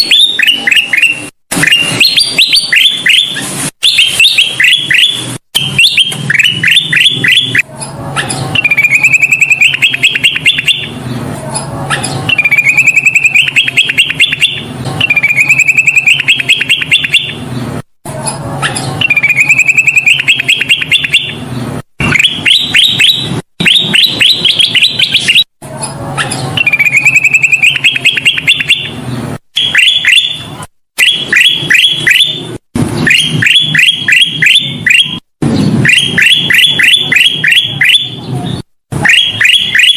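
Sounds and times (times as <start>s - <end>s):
bulbul singing trilled notes: 0.0s - 11.0s, 11.9s - 17.4s, 18.7s - 21.4s, 26.2s - 29.0s.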